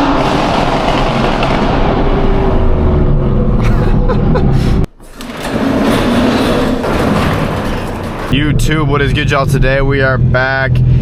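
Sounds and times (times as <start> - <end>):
exhaust crackles and pops: 0.0 - 3.7
car exhaust roaring: 0.0 - 4.9, 5.9 - 11.0.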